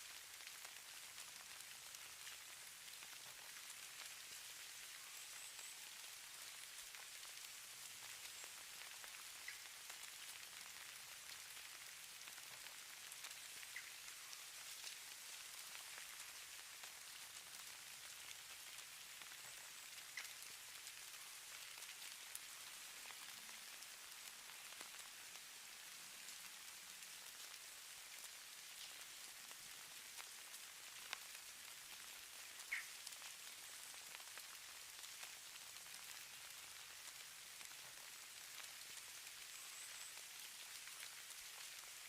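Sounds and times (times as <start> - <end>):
faint hiss of falling precipitation: 0.0 - 42.0.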